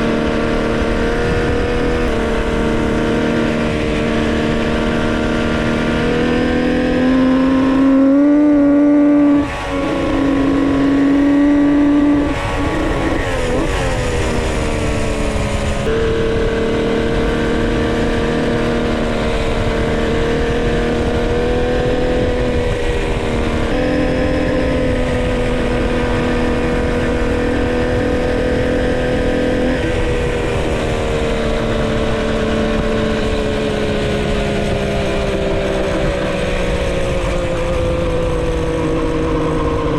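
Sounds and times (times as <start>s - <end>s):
two-stroke motorcycle engine revving: 0.0s - 39.9s.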